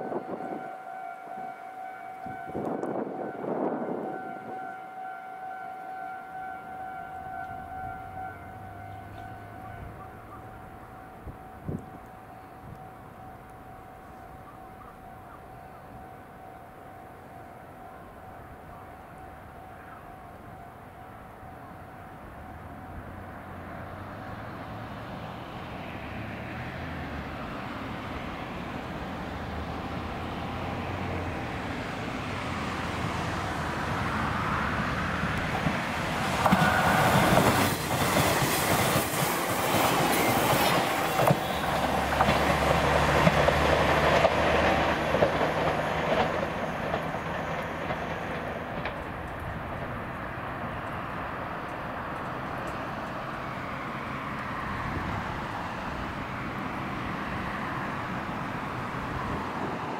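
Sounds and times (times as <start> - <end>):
electric train passing: 0.0 - 59.9
wheels clacking over rail joints: 34.7 - 53.5.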